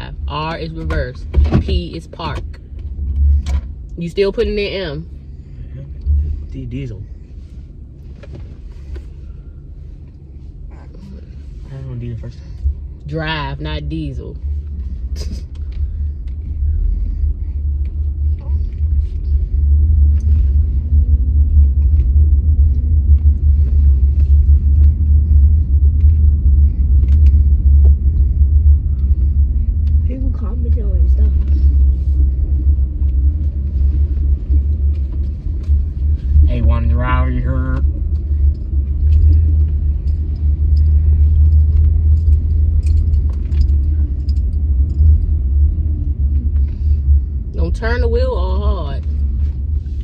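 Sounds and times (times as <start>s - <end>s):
car cabin engine and tyre rumble: 0.0s - 50.0s
faint hum: 0.0s - 50.0s
faint clicks and rattles: 37.7s - 47.2s.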